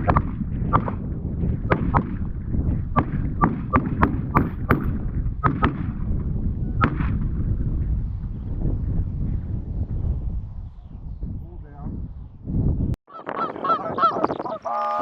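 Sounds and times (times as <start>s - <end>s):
shotgun shots: 3.0s - 6.0s, 6.8s - 7.2s.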